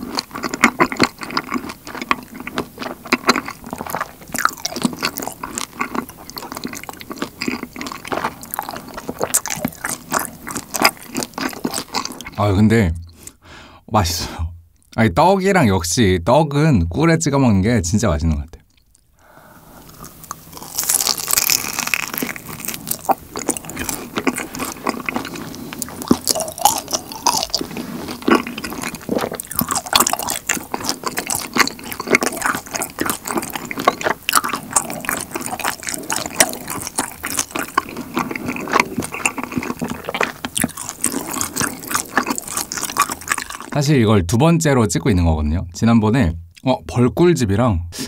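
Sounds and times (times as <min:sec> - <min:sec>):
chewing honeycomb and rice cake: 0:00.0 - 0:12.5, 0:19.8 - 0:43.9
crunching mouth clicks: 0:18.6 - 0:19.1, 0:19.8 - 0:43.8.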